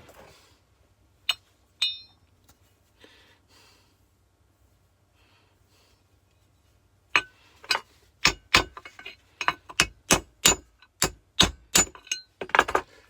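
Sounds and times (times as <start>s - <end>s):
metallic clinks: 1.3s - 2.2s
faint breath: 2.9s - 4.1s, 5.1s - 6.2s.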